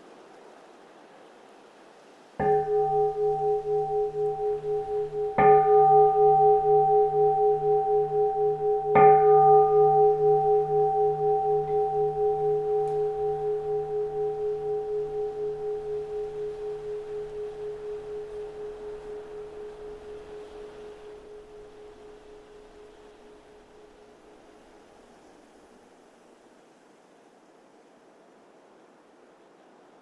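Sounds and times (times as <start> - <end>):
bowl bell ringing: 2.4 - 24.0.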